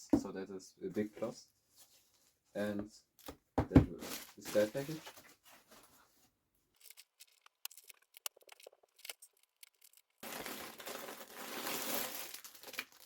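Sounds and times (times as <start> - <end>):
packaging crinkling and rustling: 4.0 - 6.1, 6.8 - 13.0.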